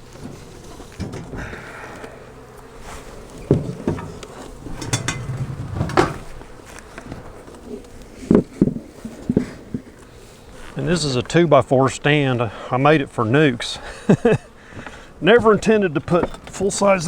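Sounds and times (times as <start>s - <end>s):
hive boxes knocking: 0.0s - 7.3s
honey bees buzzing: 0.0s - 17.0s.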